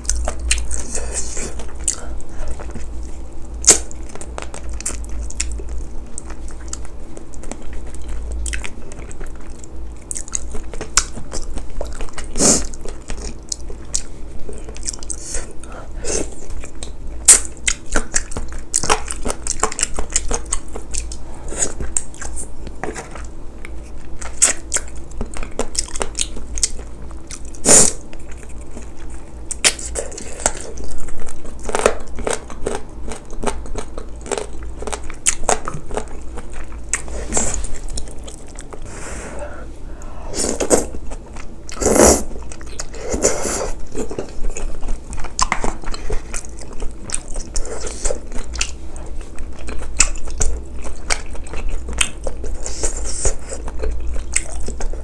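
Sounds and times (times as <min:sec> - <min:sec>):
person chewing and biting: 0:00.0 - 0:55.0
steady low hum: 0:00.0 - 0:55.0.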